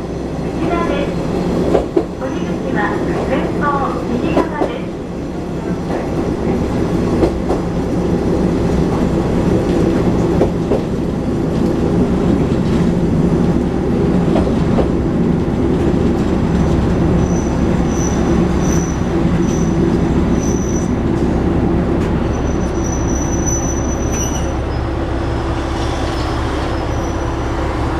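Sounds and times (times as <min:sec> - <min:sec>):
railcar engine drone: 0:00.0 - 0:27.9
wheels rumbling on rail: 0:00.0 - 0:27.9
high wheel squeal: 0:17.2 - 0:21.0, 0:22.3 - 0:25.0, 0:25.6 - 0:27.5.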